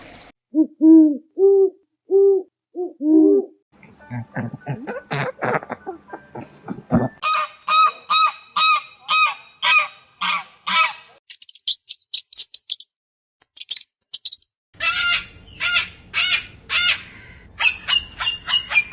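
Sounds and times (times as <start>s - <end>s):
waterfowl honking: 7.2s - 11.2s
high-pitched chirping: 11.3s - 14.5s.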